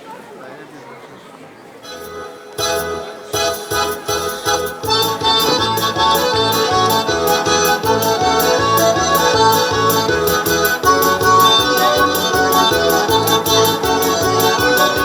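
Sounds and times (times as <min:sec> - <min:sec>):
folk dance accordion tune: 0:01.8 - 0:15.0
steady beat: 0:03.4 - 0:15.0.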